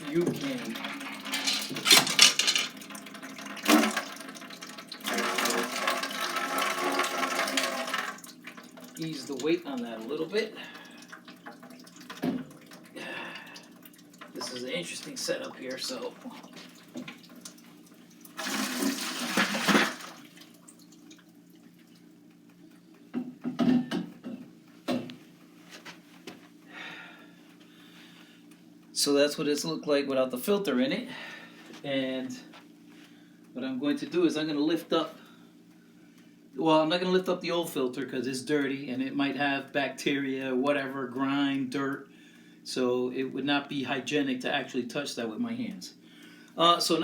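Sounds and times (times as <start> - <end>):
water pouring and sloshing: 0.0 - 22.2
faint steady hum: 0.0 - 47.0
water splashing from canister: 14.2 - 21.3
canister knocks and clunks: 23.2 - 25.1.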